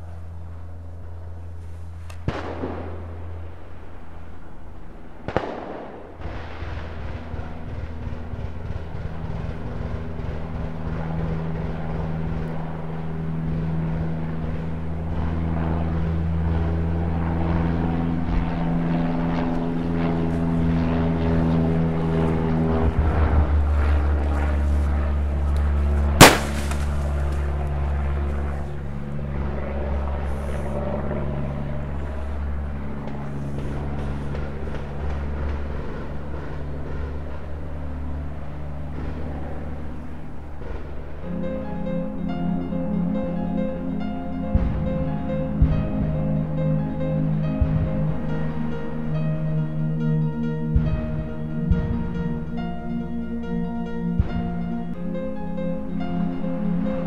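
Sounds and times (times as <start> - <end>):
low hum: 0.0 - 57.0
rifle gunshots: 5.3 - 10.5, 26.2 - 27.3.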